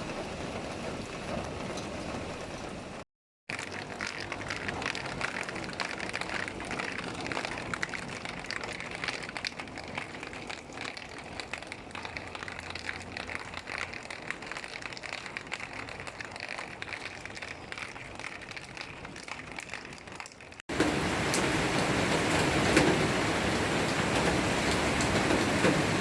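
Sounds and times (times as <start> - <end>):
heavy rain falling: 0.0 - 3.0, 20.7 - 26.0.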